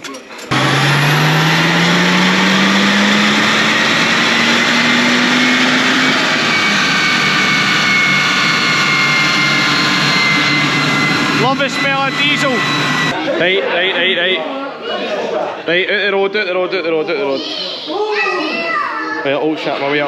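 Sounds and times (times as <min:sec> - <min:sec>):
diesel engine at full throttle: 0:00.5 - 0:13.2.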